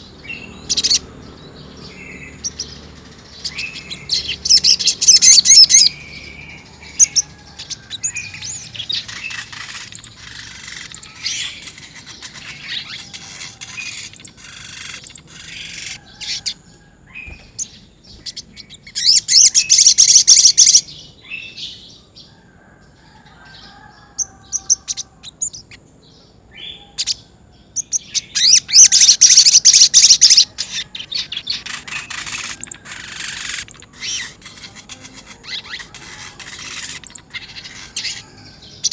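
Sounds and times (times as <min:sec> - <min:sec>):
bird singing high trills: 0:00.0 - 0:21.6, 0:27.8 - 0:38.9
bird chirps: 0:00.0 - 0:21.8, 0:23.4 - 0:38.9.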